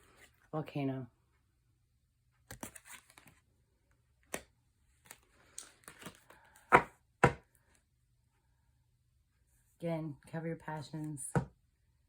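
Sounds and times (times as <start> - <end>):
cards clicking and rustling: 2.4 - 3.4, 4.2 - 6.6.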